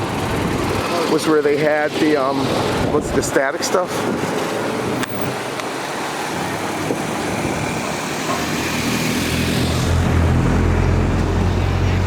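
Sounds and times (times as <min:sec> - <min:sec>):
steady outdoor noise: 0:00.0 - 0:12.0
vehicle engine approaching: 0:06.0 - 0:12.0.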